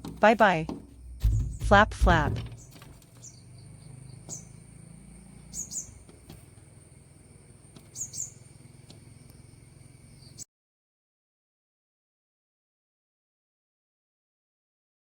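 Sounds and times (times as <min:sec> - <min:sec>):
small bird chirping: 0:00.9 - 0:10.5.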